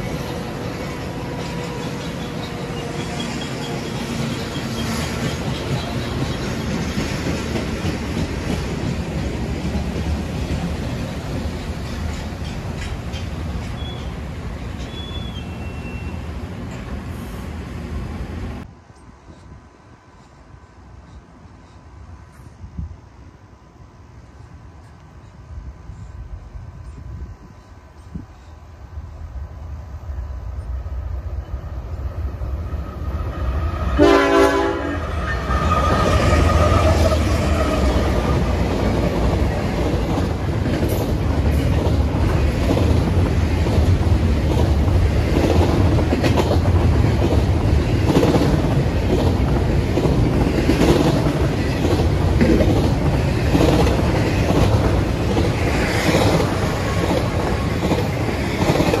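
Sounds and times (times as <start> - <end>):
diesel locomotives passing: 0.0 - 59.0
train horn blast: 33.6 - 38.4.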